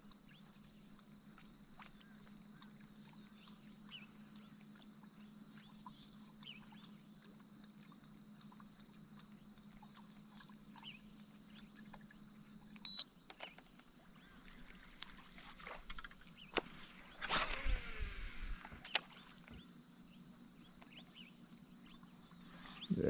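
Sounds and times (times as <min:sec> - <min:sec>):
high-pitched insect chorus: 0:00.0 - 0:23.0
low hum: 0:14.0 - 0:19.6.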